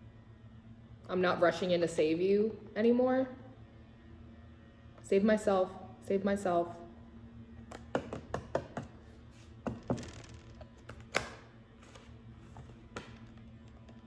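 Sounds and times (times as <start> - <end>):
cards tapping and clicking on table: 7.7 - 9.0, 9.6 - 13.5.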